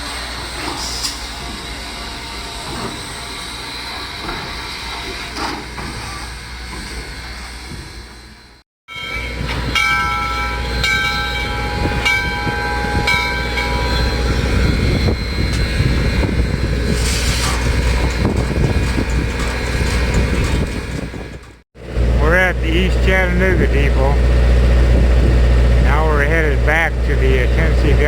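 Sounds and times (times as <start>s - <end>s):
train rumble: 0.0s - 28.0s
railroad bell ringing: 8.2s - 18.2s.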